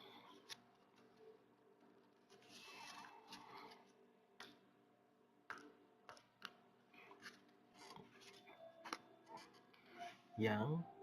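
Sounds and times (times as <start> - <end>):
cards rustling: 2.3 - 3.9.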